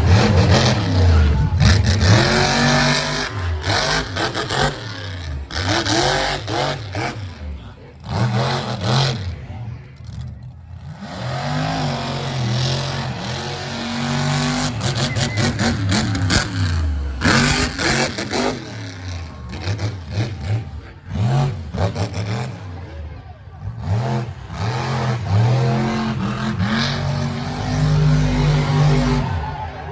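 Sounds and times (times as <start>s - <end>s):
monster truck engine revving: 0.0s - 29.9s.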